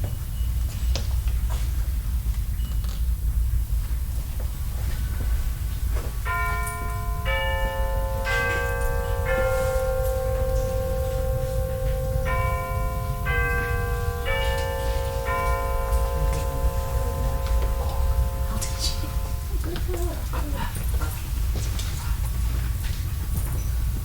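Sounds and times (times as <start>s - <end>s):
shop interior rumble: 0.0s - 24.0s
four-note electronic chime: 6.3s - 19.7s.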